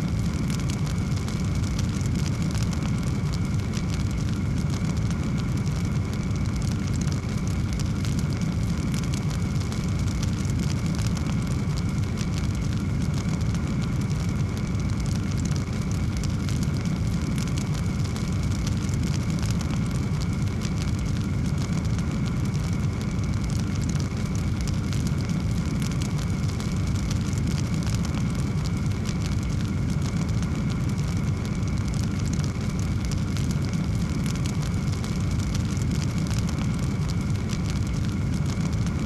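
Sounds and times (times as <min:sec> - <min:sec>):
wood fire burning: 0:00.0 - 0:39.0.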